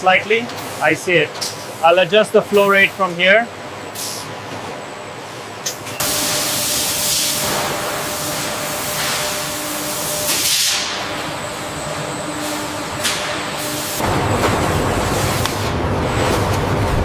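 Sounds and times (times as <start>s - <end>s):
machine hum: 0.0s - 17.0s
machinery loud hiss: 3.9s - 4.3s, 6.0s - 11.7s, 12.4s - 15.8s.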